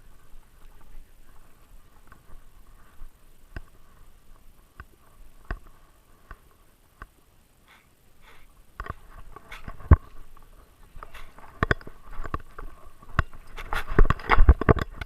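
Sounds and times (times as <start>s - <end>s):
sharp clicks and knocks: 11.0s - 15.0s.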